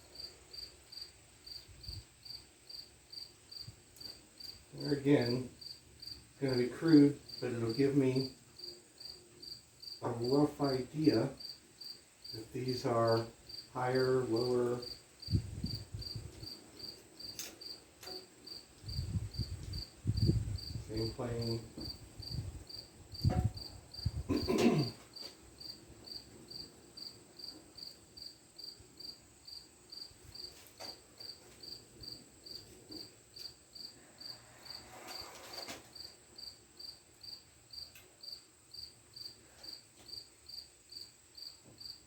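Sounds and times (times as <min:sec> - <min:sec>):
cricket chirping: 0:00.0 - 0:42.0
brief scrape: 0:34.4 - 0:35.9.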